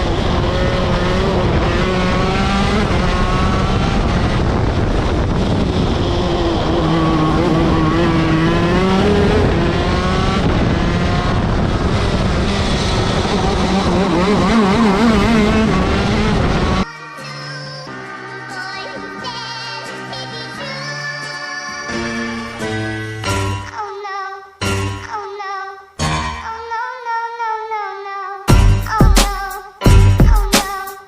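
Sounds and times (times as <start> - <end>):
kart engine revving: 0.0 - 16.9.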